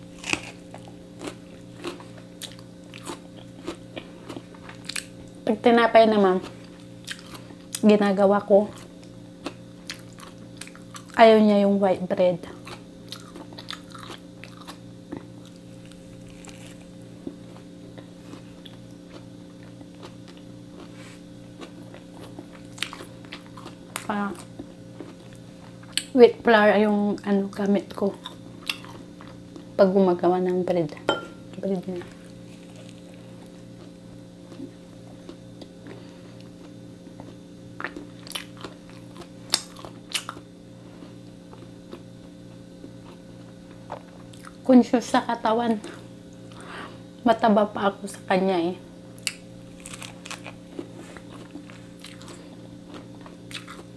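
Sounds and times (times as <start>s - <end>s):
person chewing a sandwich: 0.0s - 5.4s, 6.4s - 7.8s, 8.7s - 11.2s, 12.5s - 26.1s, 32.2s - 44.6s, 49.2s - 53.9s
steady low hum: 0.0s - 53.9s.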